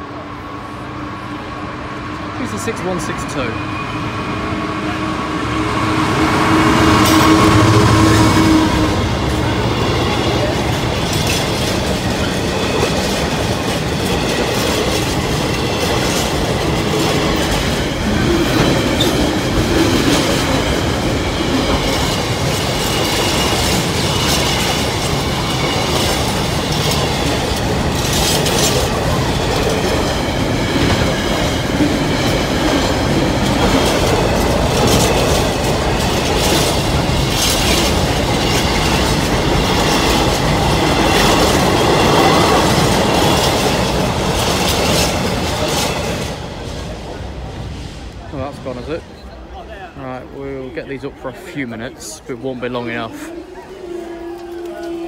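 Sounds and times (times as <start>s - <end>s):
freight train rumbling past: 0.0s - 55.0s
wheels clacking over rail joints: 6.2s - 49.3s.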